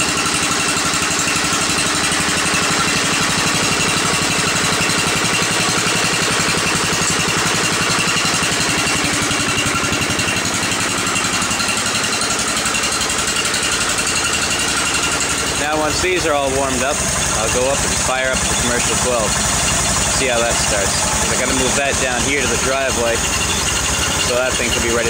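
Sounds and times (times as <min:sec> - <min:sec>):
tractor engine idling: 0:00.0 - 0:25.0.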